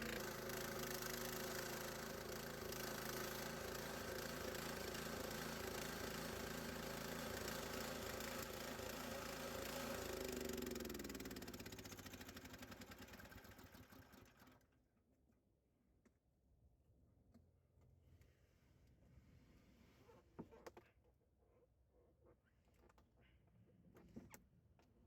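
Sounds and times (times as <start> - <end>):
gasoline engine running: 0.0 - 14.4.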